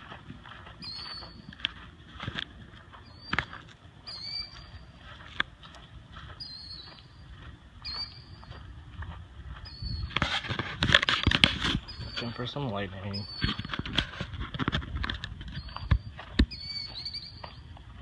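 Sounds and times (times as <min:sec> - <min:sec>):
low steady background noise: 0:00.0 - 0:18.0
small animal high chirp: 0:04.1 - 0:04.8, 0:13.1 - 0:13.5, 0:16.5 - 0:17.5.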